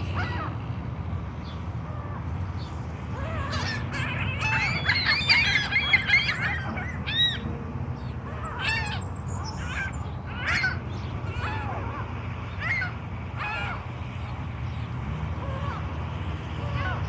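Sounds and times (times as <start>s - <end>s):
crows cawing: 8.4s - 13.9s.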